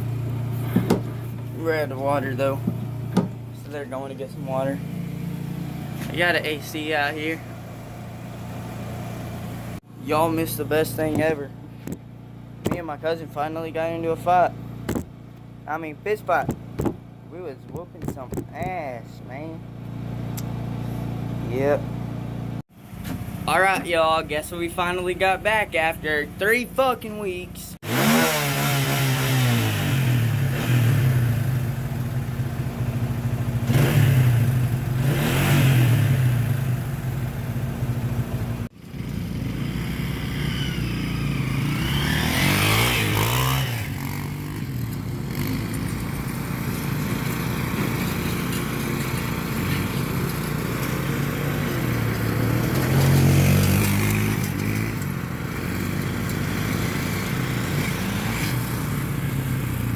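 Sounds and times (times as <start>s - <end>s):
dirt bike engine revving: 25.8s - 32.0s, 33.5s - 37.2s, 38.8s - 59.9s.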